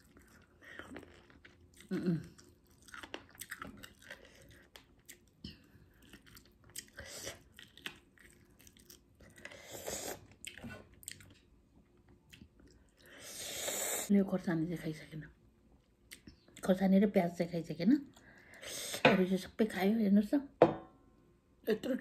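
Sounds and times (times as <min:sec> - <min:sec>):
person chewing crunchy food: 0:00.0 - 0:13.1.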